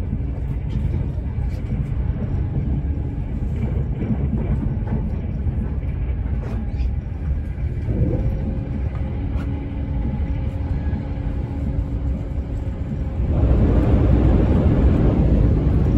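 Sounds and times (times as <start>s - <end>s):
faint hum: 0.0s - 15.9s
train rumbling from inside: 0.0s - 15.9s.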